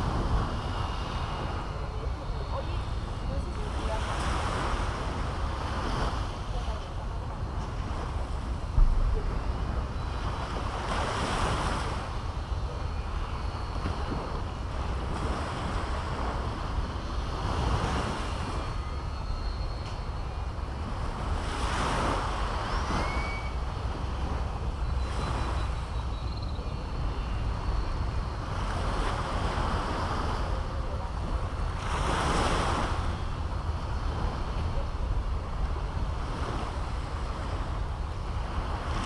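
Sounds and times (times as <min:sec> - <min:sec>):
waves breaking on a beach: 0:00.0 - 0:39.0
wind rumble on microphone: 0:00.0 - 0:39.0
faint bird calls: 0:09.2 - 0:38.6.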